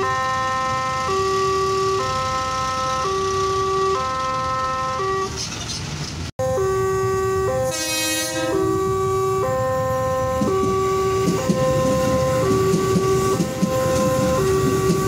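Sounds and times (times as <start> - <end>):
level crossing alarm: 0.0 - 5.4, 6.4 - 15.0
horn: 6.5 - 13.2.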